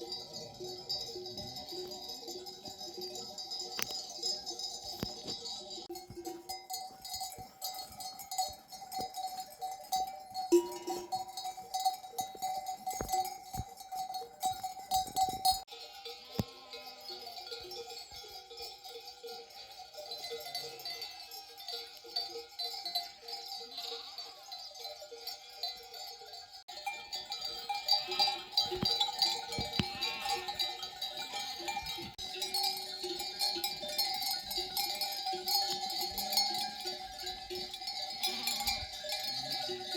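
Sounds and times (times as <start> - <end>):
sheep bells clanking: 0.0 - 39.9
sheep bleating: 15.8 - 17.1, 23.7 - 24.5, 27.8 - 32.1.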